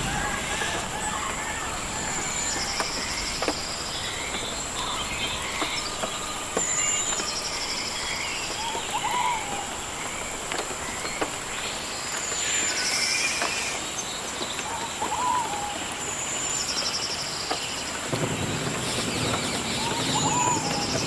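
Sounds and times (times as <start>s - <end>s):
birds chirping and trilling: 0.0s - 21.0s
high-pitched insect drone: 0.1s - 11.5s.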